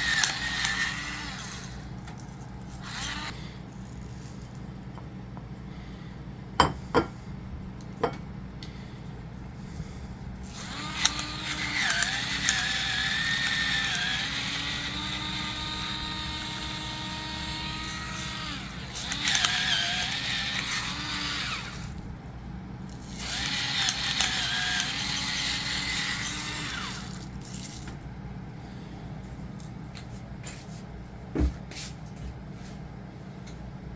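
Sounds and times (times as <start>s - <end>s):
electric grinder motor whining: 0.0s - 2.1s, 2.7s - 3.5s, 10.4s - 22.0s, 23.1s - 27.3s.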